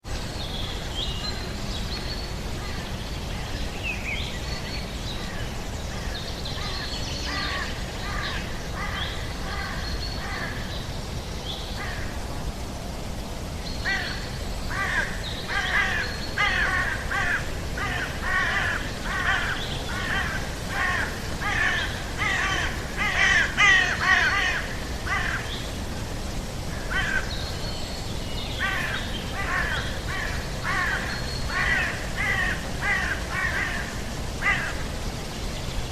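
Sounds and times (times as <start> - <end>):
harsh rasping bird calls: 13.8 - 25.6, 28.6 - 34.9.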